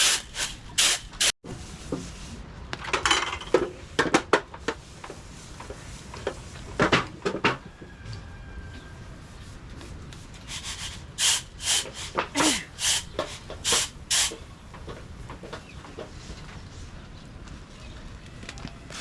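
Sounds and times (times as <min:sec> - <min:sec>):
rhythmic rubbing strokes: 0:00.0 - 0:01.4, 0:10.4 - 0:14.4.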